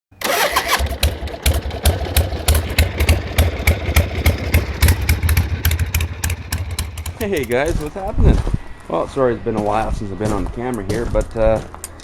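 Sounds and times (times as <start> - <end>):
vehicle engine idling unevenly: 0.2 - 8.0.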